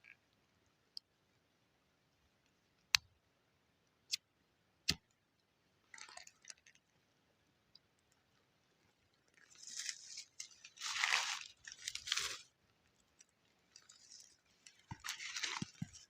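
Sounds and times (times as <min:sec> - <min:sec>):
scratchy rustle: 0:09.4 - 0:12.5.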